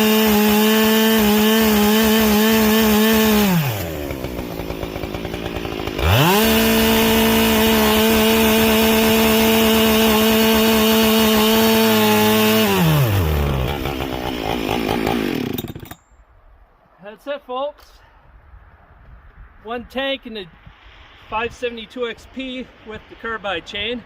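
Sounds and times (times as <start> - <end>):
chainsaw revving and idling: 0.0 - 16.0.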